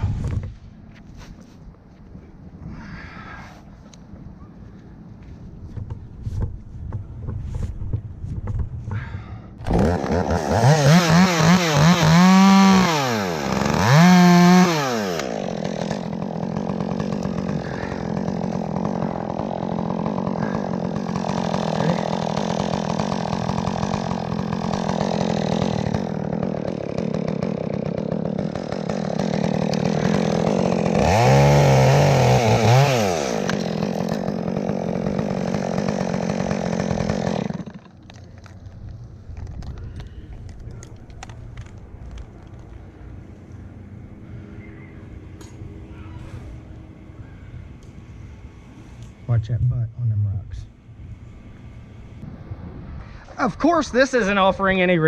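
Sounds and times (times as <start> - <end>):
chainsaw revving and running: 9.6 - 38.5.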